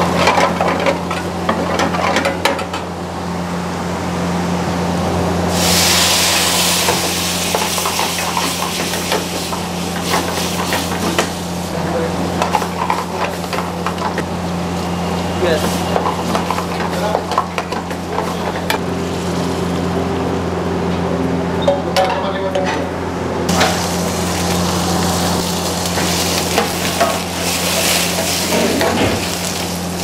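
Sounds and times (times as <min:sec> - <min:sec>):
loud sizzling hiss: 0:05.5 - 0:11.9, 0:23.5 - 0:30.0
spices crackling in hot oil: 0:05.5 - 0:19.9, 0:23.5 - 0:30.0.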